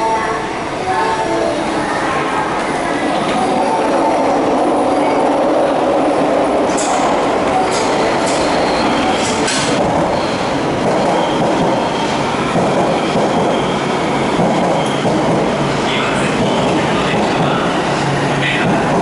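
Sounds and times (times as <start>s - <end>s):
train wheels rumbling on rail: 0.4s - 19.0s
high wheel squeals: 7.6s - 15.2s.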